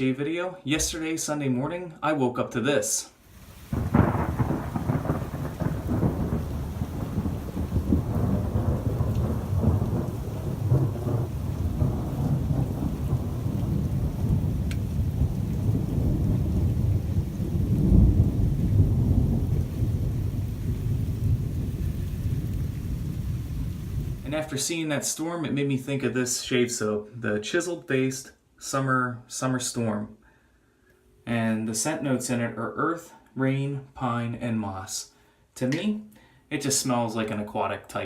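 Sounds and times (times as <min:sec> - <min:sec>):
rain falling: 0:03.2 - 0:29.8, 0:36.6 - 0:38.0
thunder rolling: 0:03.4 - 0:24.7.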